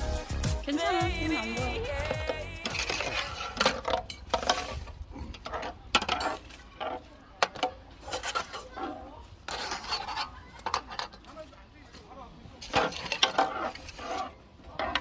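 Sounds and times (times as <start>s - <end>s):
cutlery and dishes clinking: 2.2s - 4.8s, 12.6s - 15.0s.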